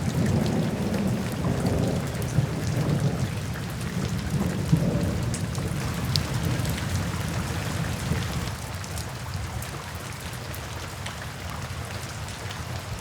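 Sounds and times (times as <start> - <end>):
low thunder rumble: 0.0 - 8.6
steady rain: 0.0 - 13.0.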